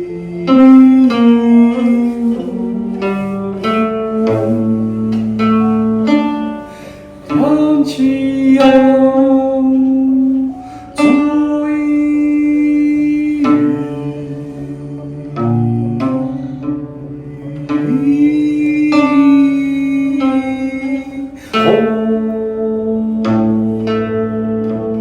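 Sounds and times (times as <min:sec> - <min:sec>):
singing voice: 0:00.0 - 0:06.5, 0:07.2 - 0:25.0
long sliding held notes: 0:00.0 - 0:25.0
plucked string instrument melody: 0:00.0 - 0:25.0.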